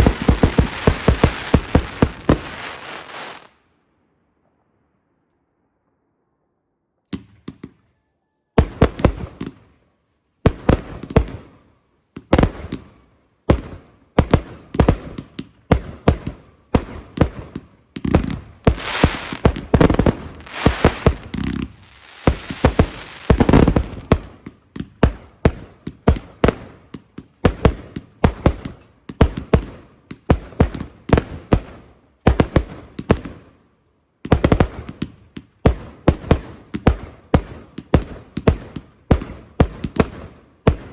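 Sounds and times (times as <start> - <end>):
fireworks bursting with sharp bangs: 0.0 - 3.6, 8.6 - 9.7, 10.5 - 11.5, 12.2 - 33.6, 34.2 - 40.9
fireworks crackling: 0.0 - 3.6, 18.0 - 24.5.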